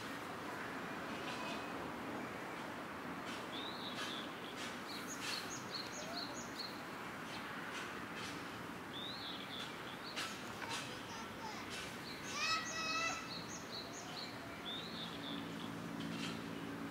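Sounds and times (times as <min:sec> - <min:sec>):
outdoor background noise: 0:00.0 - 0:16.9
small birds chirping: 0:03.5 - 0:08.3, 0:08.9 - 0:16.8.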